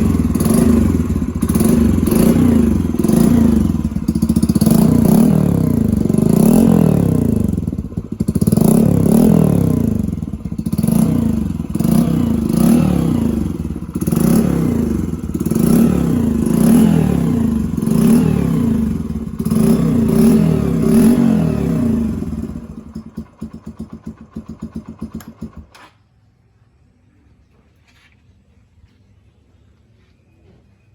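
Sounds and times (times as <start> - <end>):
choppy engine idle: 0.0 - 25.7
motorcycle engine revving: 0.0 - 26.0.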